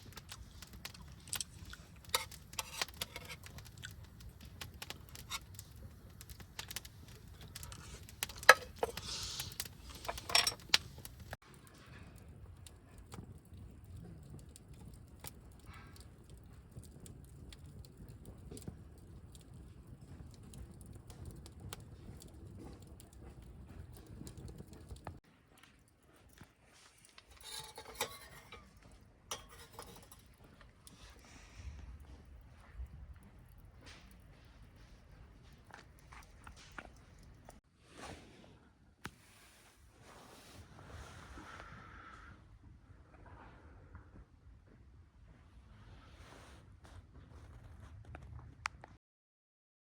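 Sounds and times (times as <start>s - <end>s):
light metallic clinks and rattles: 0.0s - 11.3s, 26.3s - 31.0s
wood fire crackling: 0.0s - 37.6s.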